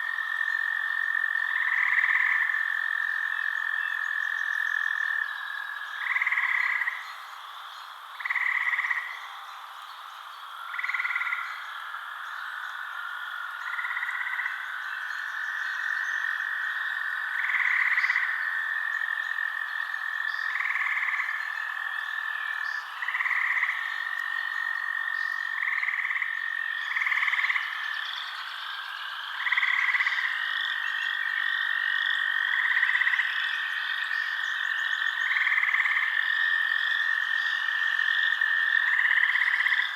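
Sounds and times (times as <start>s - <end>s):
frog trilling: 0.0s - 7.0s, 8.2s - 9.5s, 10.6s - 39.9s
frog croaking: 0.0s - 39.9s.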